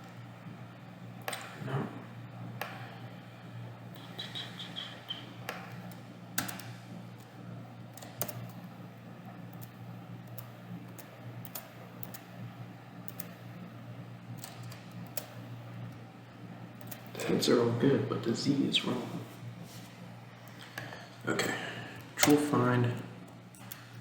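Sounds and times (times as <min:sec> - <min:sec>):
low electrical hum: 0:00.0 - 0:24.0
keyboard and mouse clicks: 0:03.9 - 0:06.7, 0:08.0 - 0:08.6, 0:16.8 - 0:17.1.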